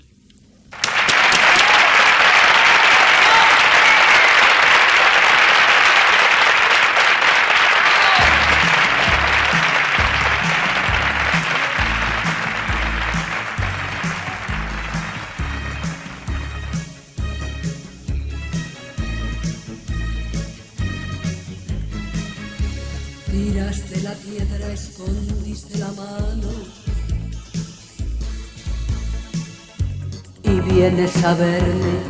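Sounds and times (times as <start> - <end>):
audience applauding: 0.8 - 17.0
song with pulsing bass line: 8.2 - 32.0.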